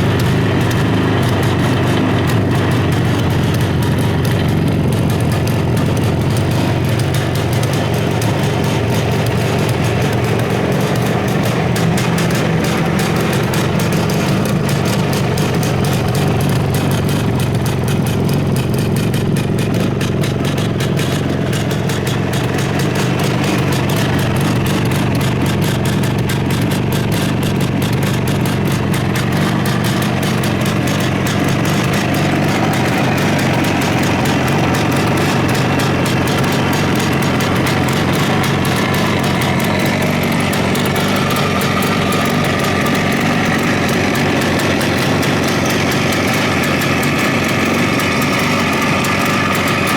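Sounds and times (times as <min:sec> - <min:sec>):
two-stroke motorcycle engine idling: 0:00.0 - 0:49.9.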